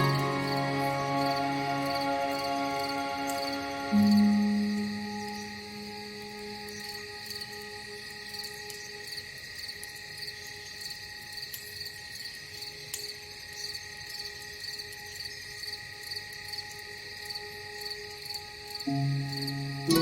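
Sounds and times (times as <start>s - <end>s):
steady hum of held tones: 0.0s - 12.1s
crickets chirping: 0.0s - 20.0s.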